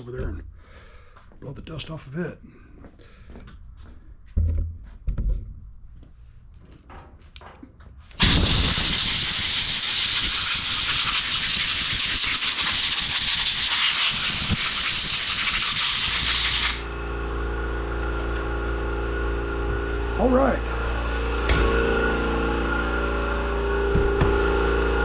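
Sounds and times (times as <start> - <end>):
compressed air blow gun hissing: 8.2 - 16.8.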